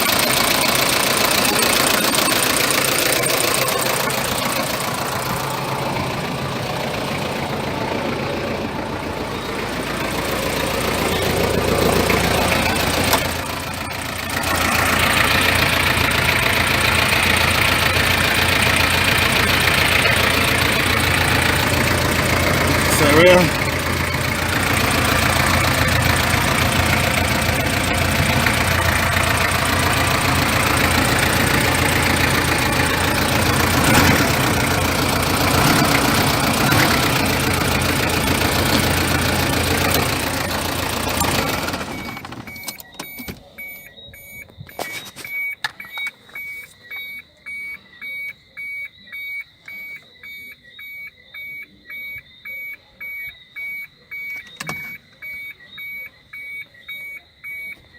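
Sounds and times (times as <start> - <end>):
diesel engine idling: 0.0 - 46.8
electronic beeps: 41.9 - 57.9.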